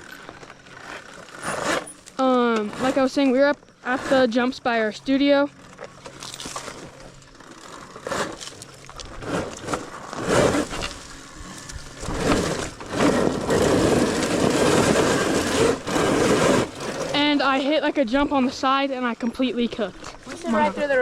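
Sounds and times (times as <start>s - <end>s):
rushing wind and trail noise: 9.0s - 17.6s.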